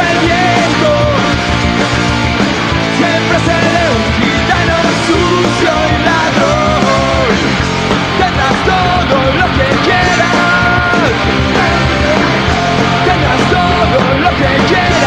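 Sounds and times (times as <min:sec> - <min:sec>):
punk rock band playing live: 0:00.0 - 0:15.0.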